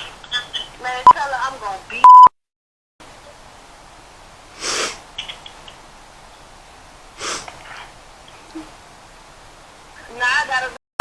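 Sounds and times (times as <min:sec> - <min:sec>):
low steady hiss: 0:00.0 - 0:02.2, 0:03.0 - 0:10.8
person snorting through nose: 0:04.6 - 0:05.0, 0:07.2 - 0:08.0.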